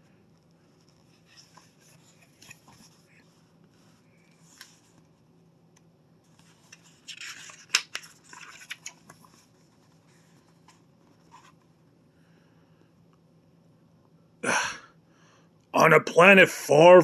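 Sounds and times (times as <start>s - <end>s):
faint steady hum: 0.0s - 17.0s
book page rustling: 0.6s - 5.1s, 6.3s - 11.7s.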